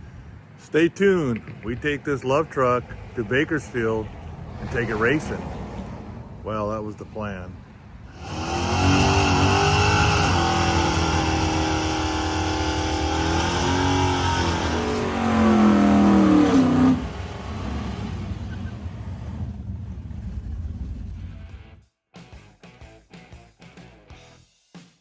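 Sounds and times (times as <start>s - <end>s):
car engine revving: 8.1s - 21.6s.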